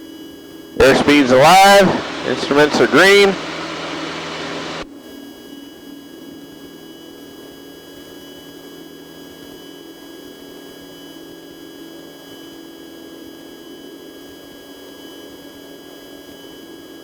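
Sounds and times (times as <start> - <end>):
light aircraft engine droning: 0.8 - 4.8
thin whining tones: 0.8 - 4.8.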